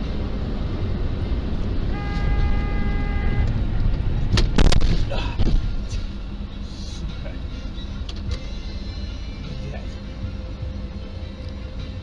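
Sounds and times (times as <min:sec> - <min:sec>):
road rumble: 0:00.0 - 0:12.0
horn-like tone: 0:01.9 - 0:03.6
car crash impacts: 0:04.3 - 0:05.8.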